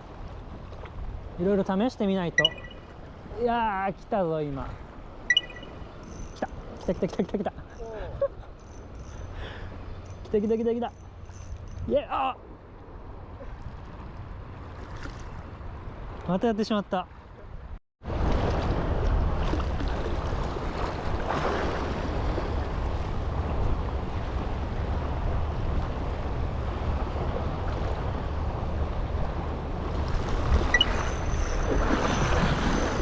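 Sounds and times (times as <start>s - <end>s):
sea waves at breakwater: 0.0s - 11.7s, 12.4s - 16.5s, 17.1s - 33.0s
wind on microphone: 18.1s - 33.0s.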